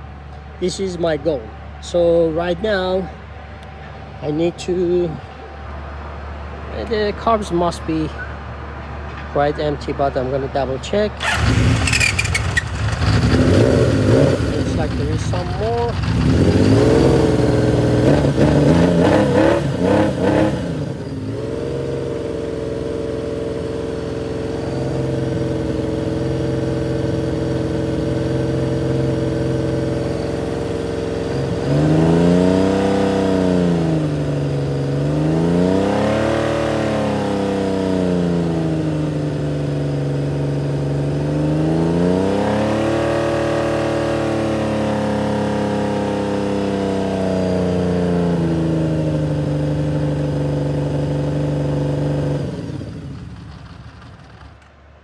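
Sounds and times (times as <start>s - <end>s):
motorcycle engine idling: 11.2s - 19.0s, 19.6s - 35.0s, 46.0s - 54.6s
engine throttle blips: 11.2s - 39.2s.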